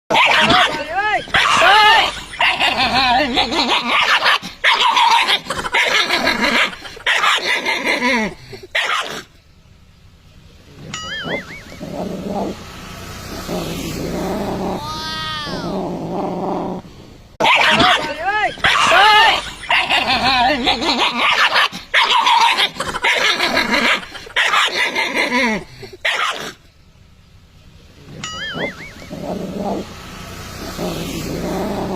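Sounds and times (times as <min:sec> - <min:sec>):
dog whining and yipping: 0:00.1 - 0:08.1, 0:10.8 - 0:12.6, 0:18.6 - 0:25.4, 0:28.1 - 0:29.9
harsh dog vocalizations: 0:00.1 - 0:09.3, 0:17.4 - 0:26.6.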